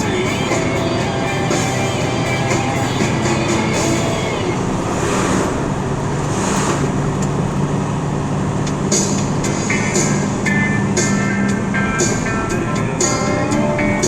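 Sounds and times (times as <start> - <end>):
vehicle road and engine noise: 0.0 - 14.0
low hum: 3.2 - 14.0.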